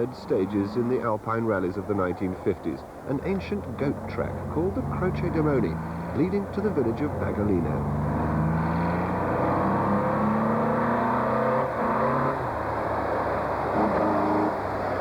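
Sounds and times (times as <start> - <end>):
rally car engine revving: 3.1 - 15.0.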